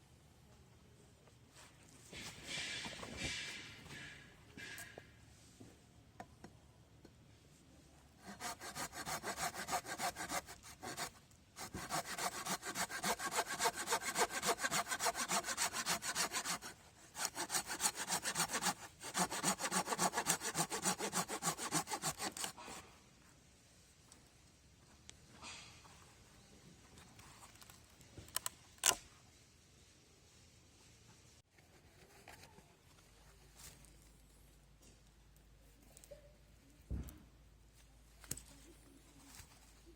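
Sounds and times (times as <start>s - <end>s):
hand saw cutting wood: 8.2s - 22.9s.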